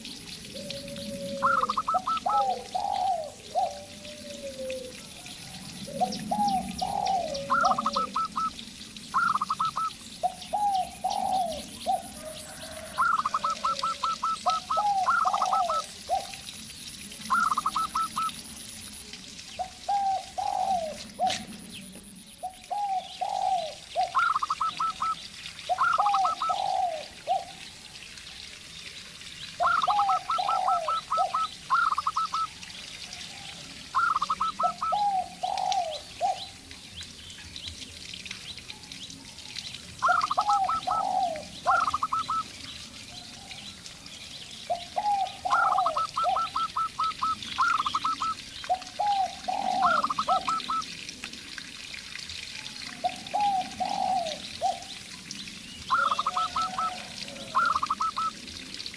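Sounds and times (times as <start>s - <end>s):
dove falling coo phrases: 0.4s - 5.0s, 5.8s - 8.5s, 10.5s - 16.4s, 19.9s - 21.6s, 22.4s - 27.5s, 29.6s - 32.4s, 34.0s - 36.5s, 40.0s - 42.4s, 44.7s - 51.0s, 53.0s - 54.8s, 55.9s - 58.3s
dove rapid cooing notes: 0.4s - 5.0s, 5.9s - 8.6s, 9.2s - 16.4s, 17.3s - 18.4s, 19.9s - 21.6s, 22.4s - 27.5s, 29.6s - 32.5s, 33.9s - 36.5s, 40.0s - 42.5s, 44.8s - 50.9s, 53.0s - 54.9s, 55.9s - 58.4s.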